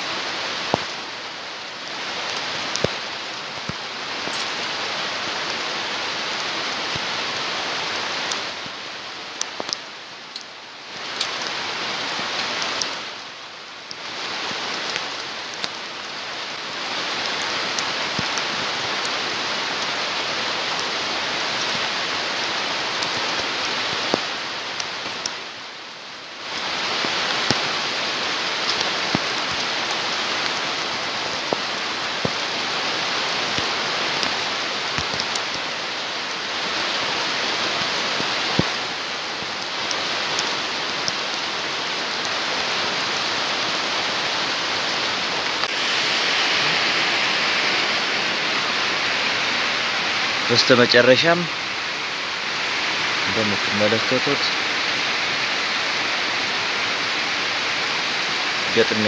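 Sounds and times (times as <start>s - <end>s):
rain hissing: 0.0s - 59.0s.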